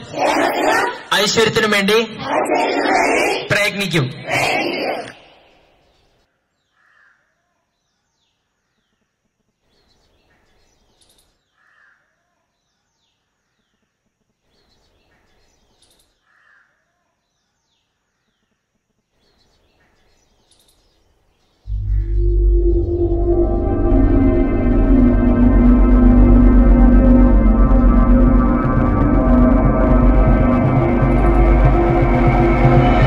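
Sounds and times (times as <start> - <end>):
faint birds chirping: 5.2 - 23.0
soft bird call: 21.7 - 22.3.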